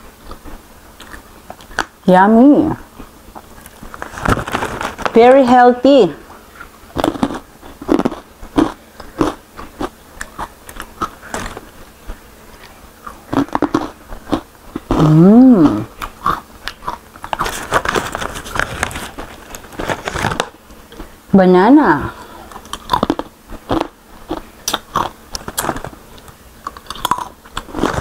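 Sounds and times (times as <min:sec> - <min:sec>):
crunching crispy chips: 0:03.4 - 0:05.2, 0:06.9 - 0:11.8, 0:12.6 - 0:15.1, 0:16.0 - 0:20.6, 0:22.5 - 0:28.0
person humming mmm: 0:14.8 - 0:16.1.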